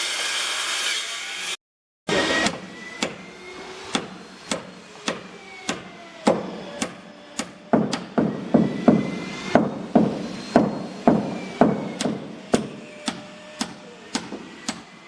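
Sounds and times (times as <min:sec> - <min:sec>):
hammer striking nails into wood: 0:02.4 - 0:03.3, 0:03.9 - 0:14.9.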